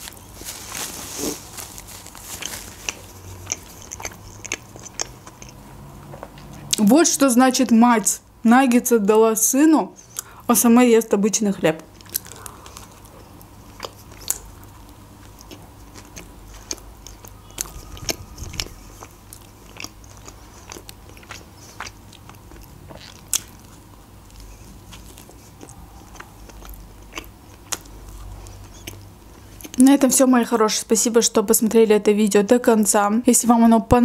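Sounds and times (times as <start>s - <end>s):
chewing bread: 0.0s - 6.8s, 11.9s - 29.8s.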